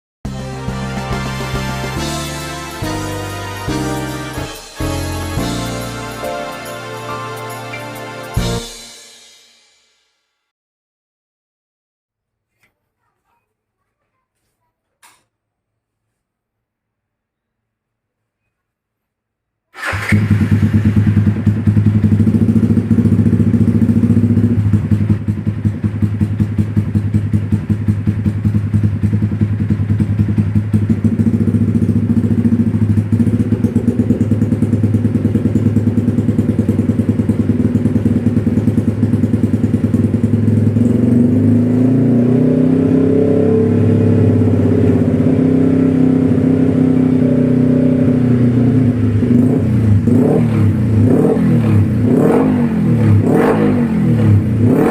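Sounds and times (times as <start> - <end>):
motorcycle engine idling: 19.8 - 41.7.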